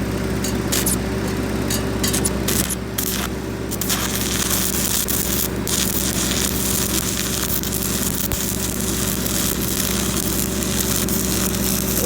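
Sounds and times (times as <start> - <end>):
welding arc crackling hiss: 0.6 - 1.1, 1.7 - 12.0.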